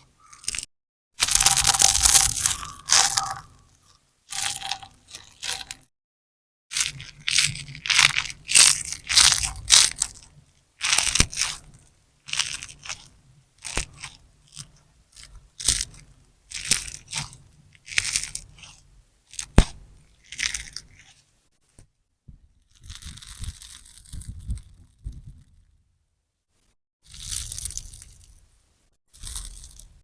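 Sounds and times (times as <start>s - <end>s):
slime sponge squelching: 0.0s - 5.9s, 6.7s - 21.3s.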